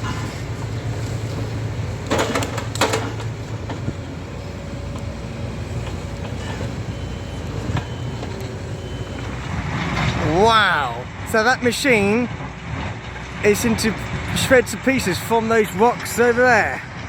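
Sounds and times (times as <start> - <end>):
clanks and knocks: 0.0 - 10.2
heavy machine diesel hum: 0.0 - 17.0.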